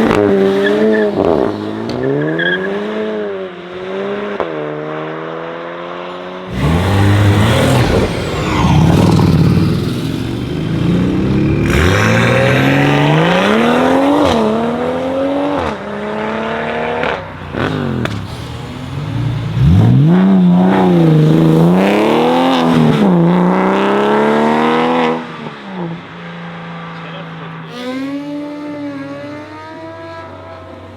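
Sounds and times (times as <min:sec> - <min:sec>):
cars accelerating with revving engines: 0:00.0 - 0:30.9.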